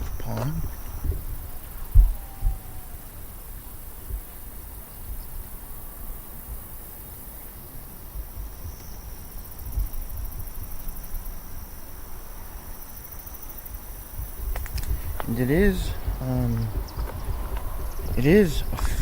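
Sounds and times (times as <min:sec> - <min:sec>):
low rumbling bumps: 0:00.0 - 0:04.4, 0:14.2 - 0:19.0
crickets trilling: 0:00.0 - 0:19.0.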